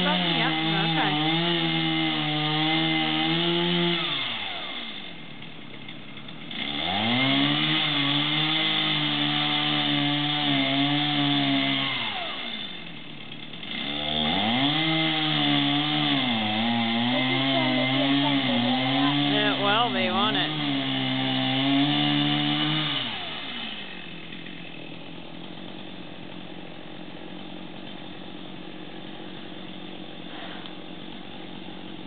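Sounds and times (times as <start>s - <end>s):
chainsaw revving: 0.0s - 32.0s.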